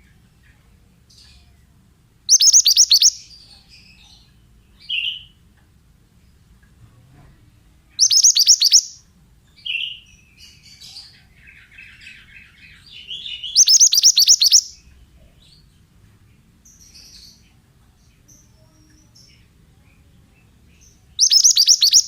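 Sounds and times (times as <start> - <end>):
bird song rapid high notes: 2.3 - 3.3, 8.0 - 9.0, 13.0 - 14.9, 21.2 - 22.0
soft bird twittering: 2.3 - 5.4, 8.0 - 9.0, 9.6 - 15.6, 18.2 - 22.0.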